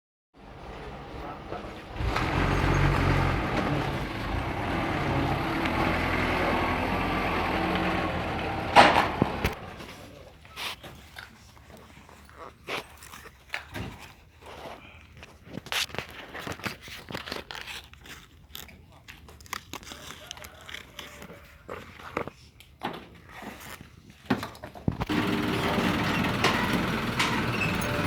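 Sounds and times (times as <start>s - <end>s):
truck engine running: 0.4s - 10.0s, 25.0s - 28.0s.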